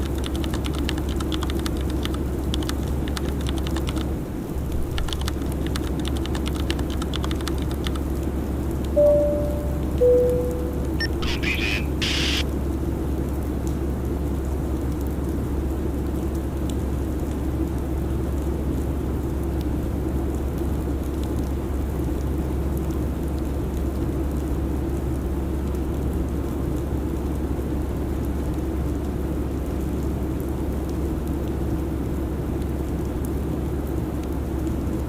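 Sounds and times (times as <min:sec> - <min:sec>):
airliner cabin drone: 0:08.9 - 0:12.4.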